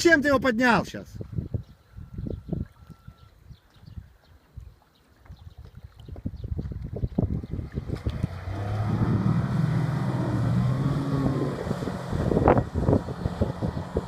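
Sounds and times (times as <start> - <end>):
wind buffeting microphone: 1.1 - 14.0
outboard motor running: 7.2 - 14.0.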